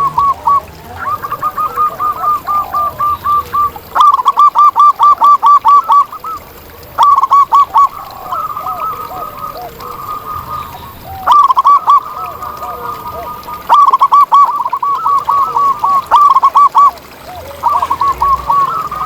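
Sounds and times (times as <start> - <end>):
doves cooing rapidly: 0.0 - 19.0
lower-pitched dove calling softly: 0.0 - 19.0.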